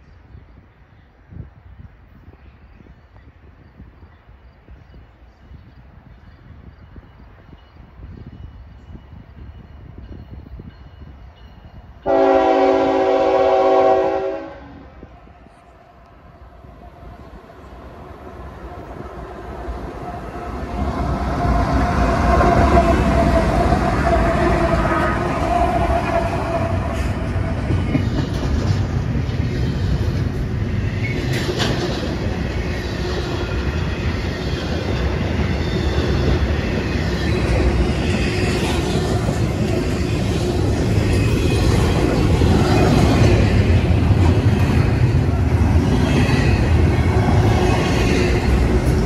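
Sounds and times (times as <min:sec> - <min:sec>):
diesel locomotive engines: 0:00.0 - 0:49.0
train wheels clacking on rail: 0:20.0 - 0:49.0.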